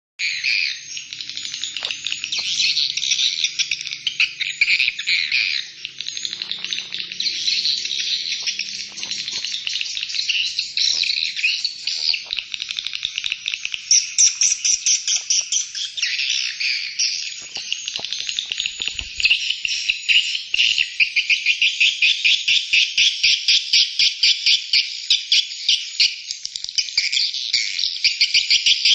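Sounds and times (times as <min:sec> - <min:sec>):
chorus of trilling animal calls: 0:00.2 - 0:22.3.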